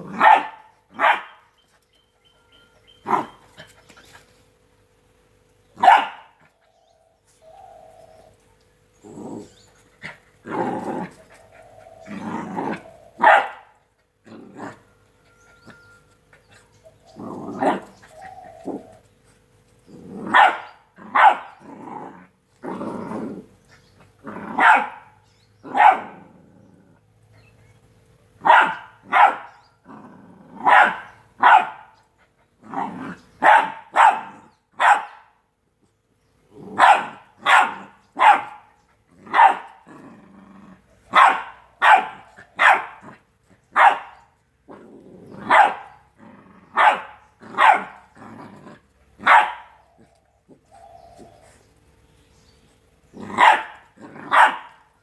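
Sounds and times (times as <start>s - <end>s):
puppy barking: 0.1s - 1.4s, 3.0s - 3.4s, 5.8s - 6.4s, 13.2s - 13.7s, 20.2s - 21.6s, 24.4s - 26.3s, 28.4s - 29.6s, 30.6s - 32.0s, 32.7s - 35.4s, 36.7s - 39.9s, 41.1s - 48.2s, 49.2s - 49.8s, 53.2s - 54.9s
puppy growling: 7.4s - 15.8s, 16.4s - 19.2s, 19.8s - 27.4s, 29.8s - 34.6s, 36.5s - 44.0s, 44.6s - 51.8s, 53.0s - 55.0s.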